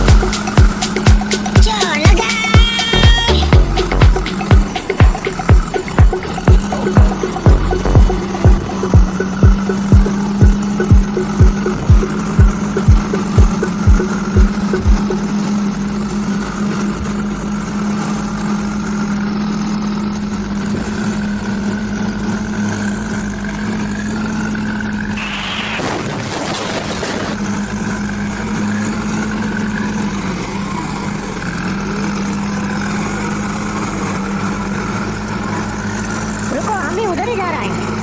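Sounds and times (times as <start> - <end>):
heavy vehicle engine humming: 0.0 - 38.0
short rushing noise burst: 25.2 - 27.4.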